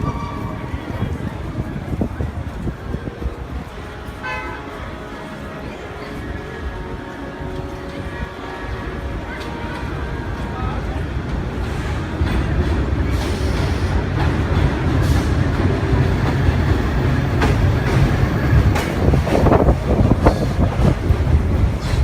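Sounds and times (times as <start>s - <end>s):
subway train rumble: 0.0s - 22.0s
wheels clacking over rail joints: 8.8s - 22.0s.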